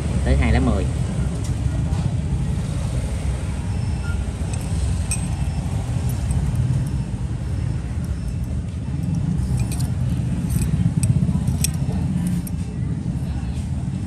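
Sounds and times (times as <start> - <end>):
road traffic rumble: 0.0 - 14.0
faint light clinks: 4.0 - 13.5.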